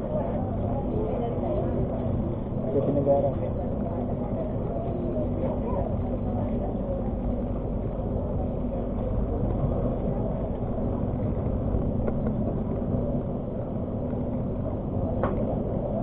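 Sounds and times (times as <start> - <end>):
train rumbling on track: 0.0 - 16.0.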